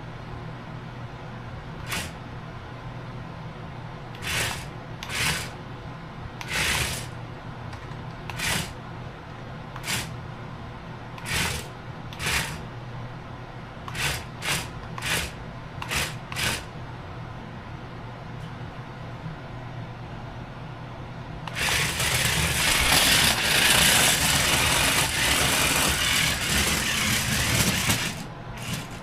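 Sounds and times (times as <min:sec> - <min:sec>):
electric motor buzz: 0:01.8 - 0:02.2, 0:04.2 - 0:05.6, 0:06.4 - 0:07.2, 0:08.3 - 0:08.8, 0:09.8 - 0:10.1, 0:11.2 - 0:12.6, 0:13.9 - 0:16.7, 0:21.5 - 0:29.0
short rasping bursts: 0:01.8 - 0:02.2, 0:04.2 - 0:05.6, 0:06.4 - 0:07.1, 0:08.3 - 0:08.8, 0:09.8 - 0:10.1, 0:11.2 - 0:12.6, 0:13.9 - 0:16.7, 0:21.5 - 0:29.0.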